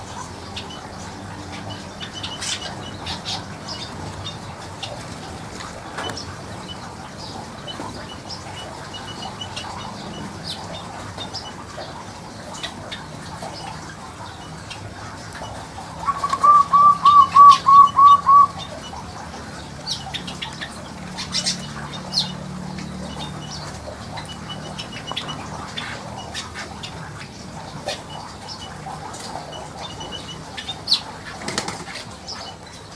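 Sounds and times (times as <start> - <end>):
bird singing clear notes: 16.0 - 19.1.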